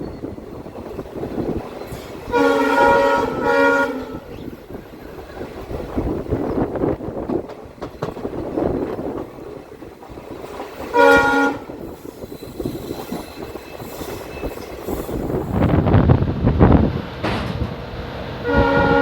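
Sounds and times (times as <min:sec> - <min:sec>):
train rumbling: 0:00.0 - 0:19.0
locomotive horn blast: 0:02.3 - 0:04.4, 0:10.9 - 0:11.8, 0:18.4 - 0:19.0
wheels clicking over rails: 0:07.0 - 0:10.9.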